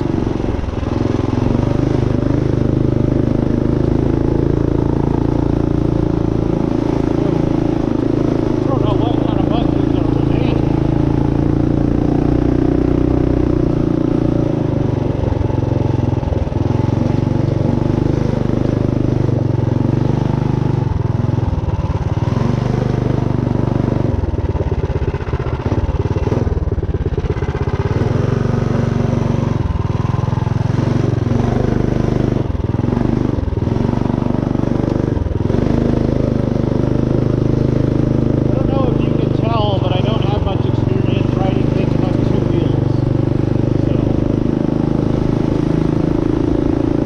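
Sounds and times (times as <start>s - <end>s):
minibike engine running: 0.0s - 47.0s.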